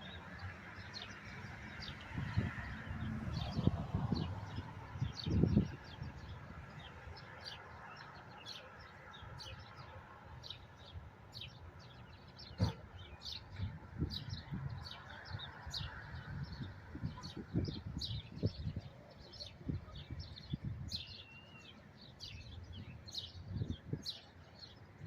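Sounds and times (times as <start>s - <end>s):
birds chirping: 0.0s - 25.0s
thump: 12.6s - 12.8s.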